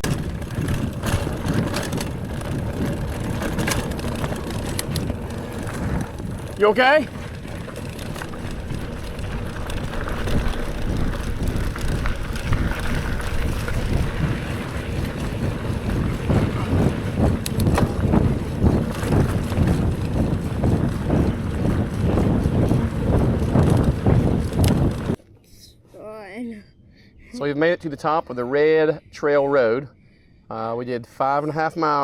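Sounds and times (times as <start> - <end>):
bike knocking and rattling: 0.0 - 25.2
wind rumbling on microphone: 0.0 - 25.2.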